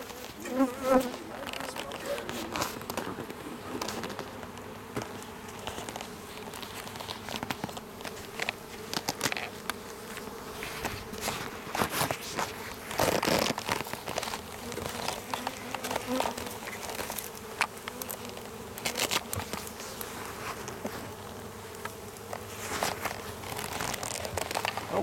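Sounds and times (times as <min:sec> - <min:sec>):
bees buzzing: 0:00.0 - 0:25.0
hive clicks and knocks: 0:00.0 - 0:25.0.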